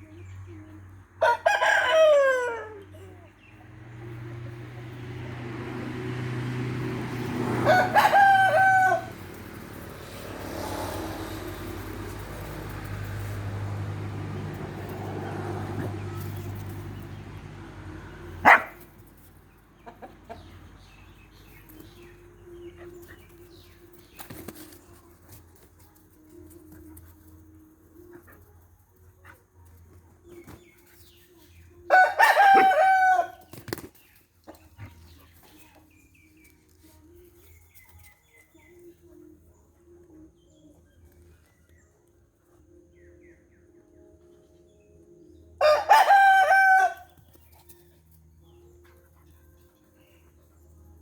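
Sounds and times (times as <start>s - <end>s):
rooster crowing: 1.2s - 2.8s, 7.6s - 9.2s, 31.9s - 33.4s, 45.6s - 47.1s.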